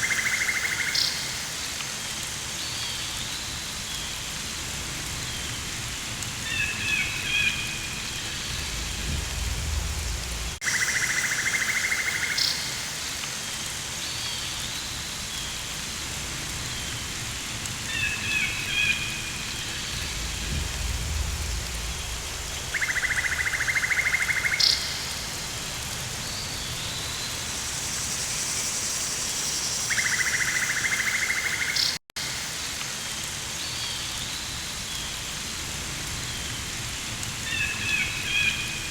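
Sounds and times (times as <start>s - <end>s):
steady rain hiss: 0.0s - 38.9s
low rumbles: 8.2s - 10.6s, 19.4s - 23.2s.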